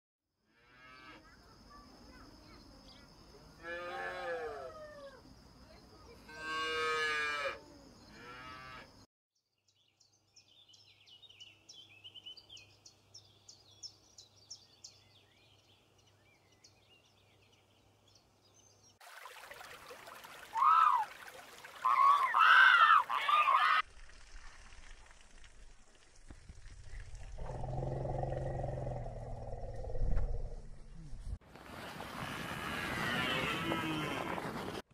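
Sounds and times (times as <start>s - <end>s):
loud high calls: 20.4s - 23.8s
low rumble: 26.6s - 31.4s.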